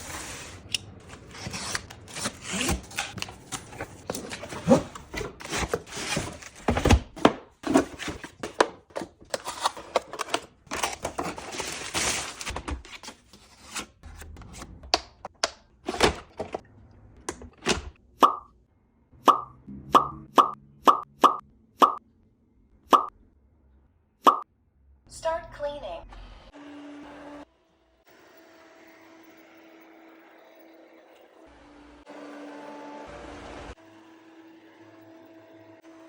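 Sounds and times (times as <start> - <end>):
packaging rustling: 7.6 - 13.8.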